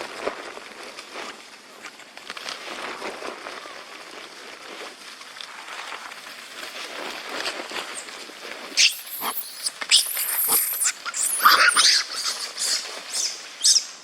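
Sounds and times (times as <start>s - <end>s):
monkeys screeching: 8.8s - 14.0s.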